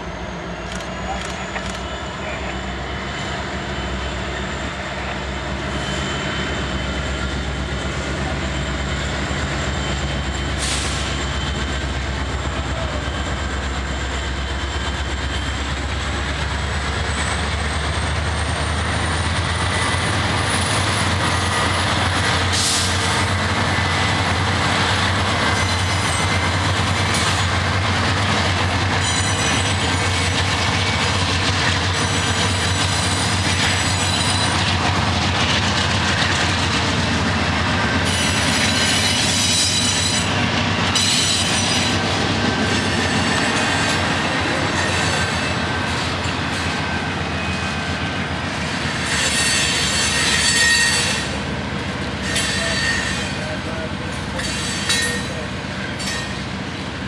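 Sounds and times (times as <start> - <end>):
high wheel squeal: 0.0 - 12.4, 28.9 - 31.2, 31.8 - 34.7, 37.8 - 51.4, 52.1 - 56.4
diesel locomotive engine drone: 0.0 - 57.0
train wheel clatter: 0.6 - 2.6, 5.9 - 57.0.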